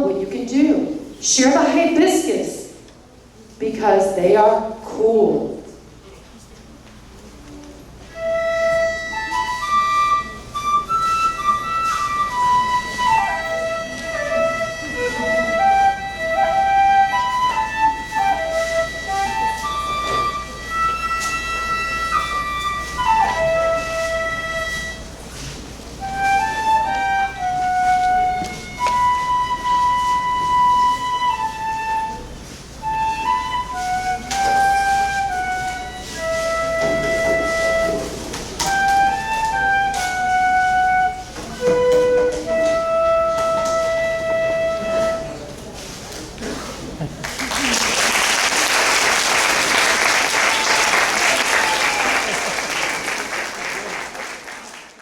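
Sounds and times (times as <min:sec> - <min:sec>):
flute-like slow melody: 0:07.5 - 0:45.9.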